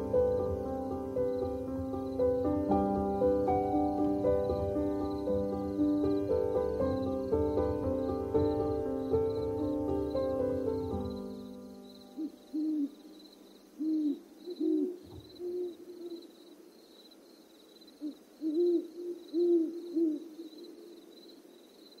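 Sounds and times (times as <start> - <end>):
low hooting bird calls: 8.4 - 16.9, 17.8 - 21.6.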